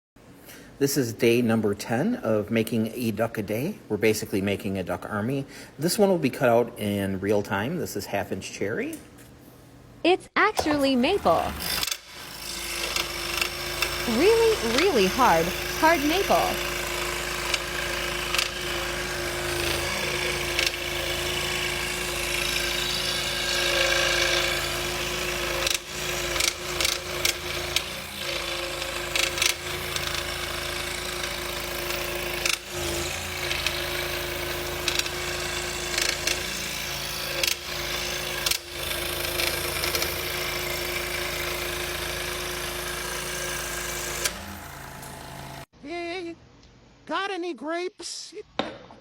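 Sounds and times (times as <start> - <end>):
scroll saw cutting wood: 10.6 - 45.7.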